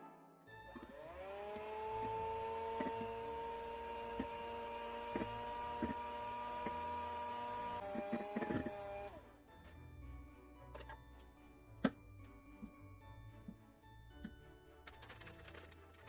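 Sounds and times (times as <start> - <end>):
electric hand mixer motor: 0.6 - 9.4
mixer beaters knocking bowl: 0.8 - 9.2.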